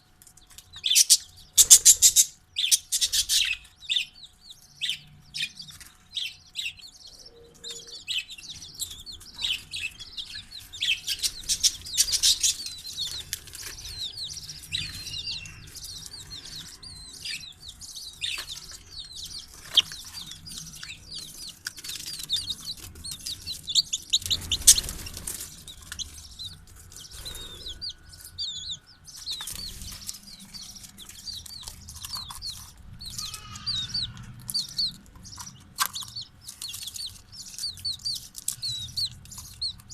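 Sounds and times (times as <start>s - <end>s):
chicks and parrots chirping: 0.0s - 39.9s.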